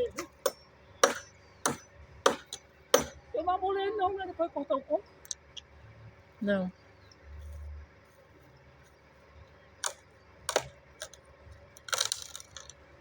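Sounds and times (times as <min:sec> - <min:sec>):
machete chopping wood: 0:00.1 - 0:03.2, 0:09.8 - 0:10.7.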